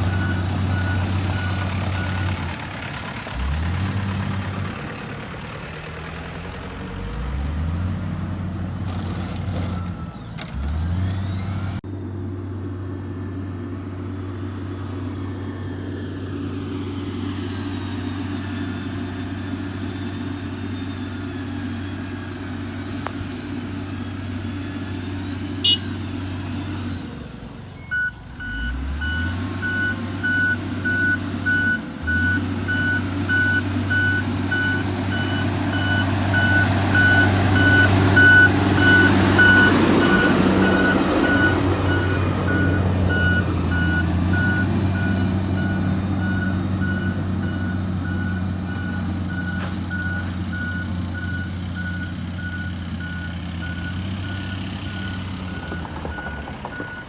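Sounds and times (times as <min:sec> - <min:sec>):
reversing alarm beeping: 0:00.0 - 0:02.5, 0:25.6 - 0:26.1, 0:27.8 - 0:57.0
diesel engine running: 0:00.0 - 0:57.0.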